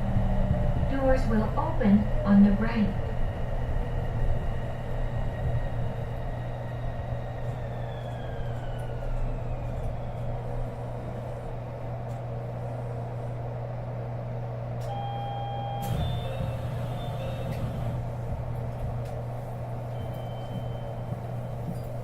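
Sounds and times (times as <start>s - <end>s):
steady low hum: 0.0s - 22.0s
train motor whine braking: 14.8s - 18.3s.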